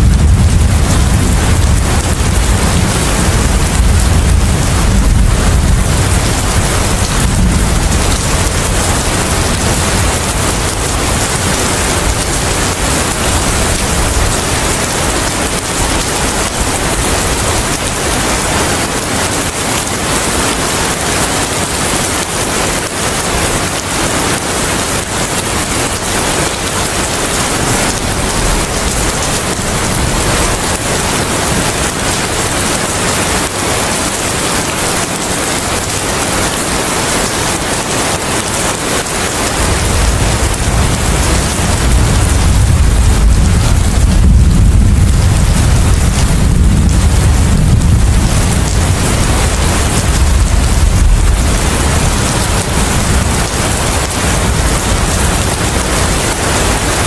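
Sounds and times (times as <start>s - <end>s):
deep rumble: 0.0s - 14.4s, 39.7s - 55.5s
heavy rain: 0.0s - 57.0s.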